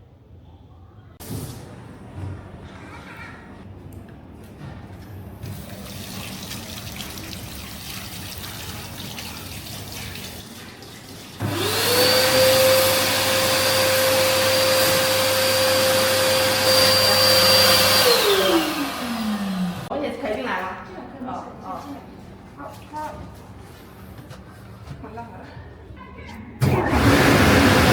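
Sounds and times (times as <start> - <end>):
electric motor whining: 11.4 - 19.9.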